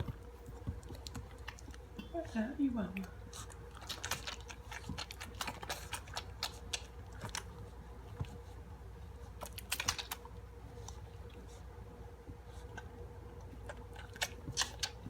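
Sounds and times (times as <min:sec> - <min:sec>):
dogs crunching dry kibble: 0:00.0 - 0:08.5, 0:09.2 - 0:11.6, 0:12.5 - 0:15.0
faint steady hum: 0:00.0 - 0:15.0.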